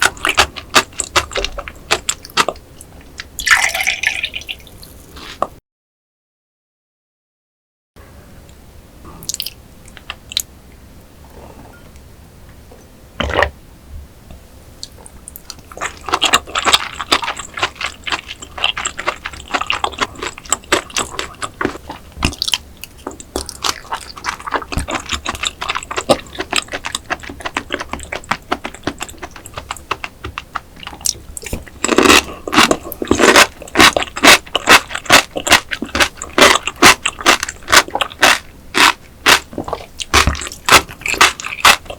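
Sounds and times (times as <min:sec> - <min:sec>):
wet chewing: 0:00.0 - 0:05.4, 0:14.8 - 0:41.9.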